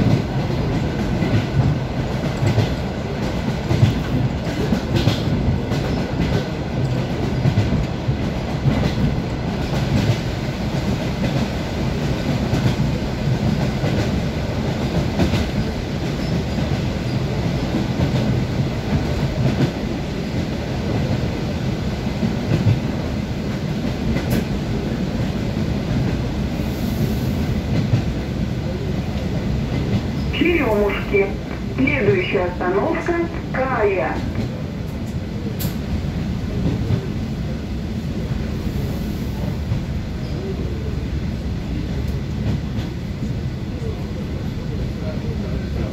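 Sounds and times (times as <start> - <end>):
train wheels rumbling: 0.0 - 45.9.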